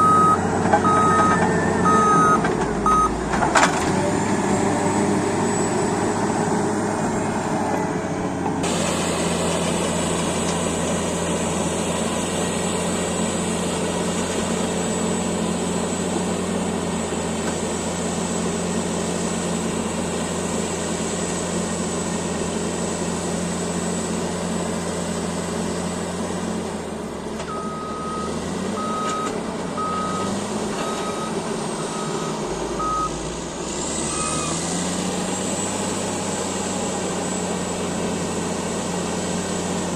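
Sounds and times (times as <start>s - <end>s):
reverse alarm beeps: 0.0s - 3.2s, 27.5s - 33.2s
bulldozer diesel engine running: 0.0s - 39.9s.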